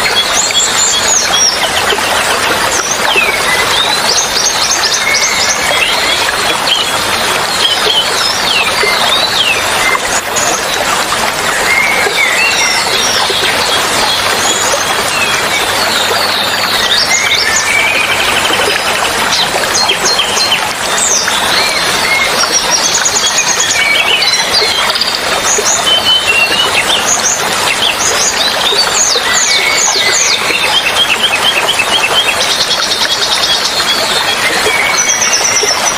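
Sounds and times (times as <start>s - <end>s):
flowing water rushing: 0.0s - 35.9s
songbirds whistling: 11.5s - 35.9s.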